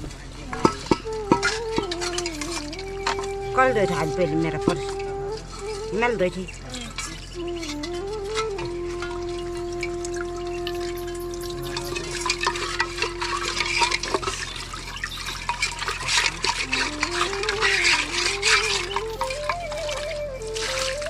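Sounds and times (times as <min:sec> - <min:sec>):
slow background melody: 0:00.0 - 0:21.0
water splashing and dripping: 0:07.0 - 0:21.0.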